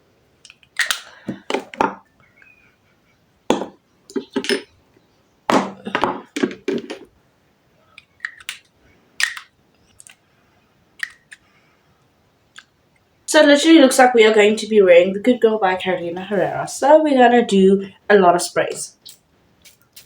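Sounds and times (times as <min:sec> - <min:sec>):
glass bottles clinking: 0:03.5 - 0:04.8.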